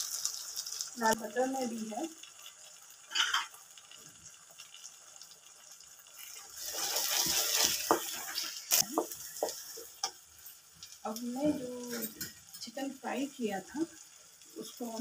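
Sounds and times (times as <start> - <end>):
paste sizzling in a pan: 0.0 - 15.0
spatula stirring and scraping: 6.2 - 10.2.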